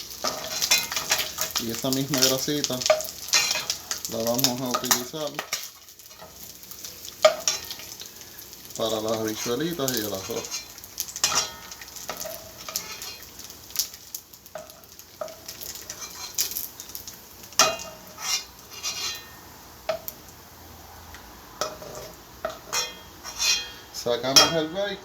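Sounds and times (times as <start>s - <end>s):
utensil scraping a frying pan: 0.0s - 20.2s, 21.6s - 25.0s
faint sizzling fat: 0.0s - 25.0s.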